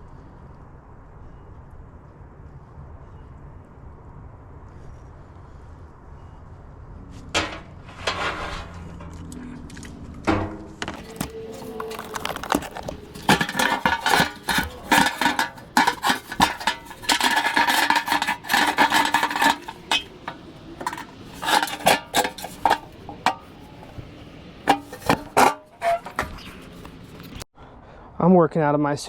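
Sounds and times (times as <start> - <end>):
metal objects clanking: 7.3 - 9.2, 10.3 - 27.1.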